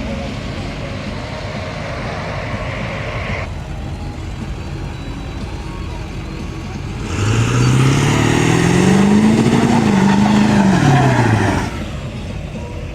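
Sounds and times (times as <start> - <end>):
background rumble: 0.0 - 7.0
truck engine revving: 0.0 - 12.9.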